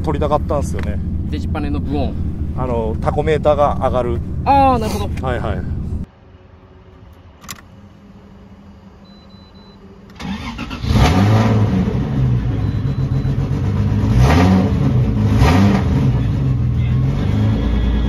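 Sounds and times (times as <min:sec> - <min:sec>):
car engine starting and revving: 0:00.0 - 0:06.1, 0:07.4 - 0:18.0
click: 0:07.1 - 0:07.7.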